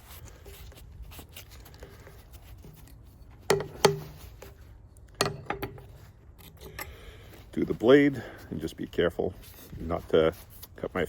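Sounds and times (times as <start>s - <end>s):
sharp knocks: 3.5s - 4.2s, 5.2s - 5.9s.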